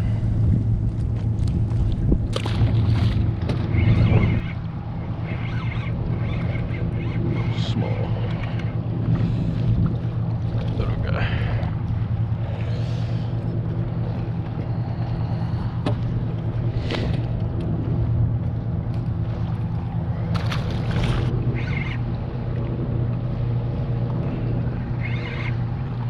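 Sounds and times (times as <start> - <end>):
boat engine running: 0.0 - 26.0
splashy rustling noises: 1.0 - 4.0, 19.3 - 21.4.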